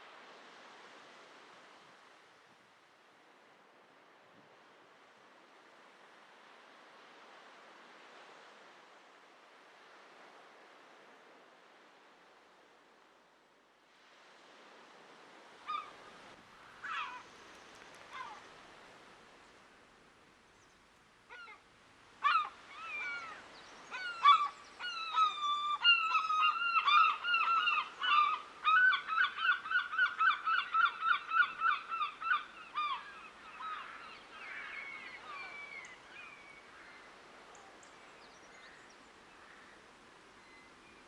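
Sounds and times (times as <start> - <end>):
waterbirds calling: 15.7 - 16.0, 22.2 - 41.0.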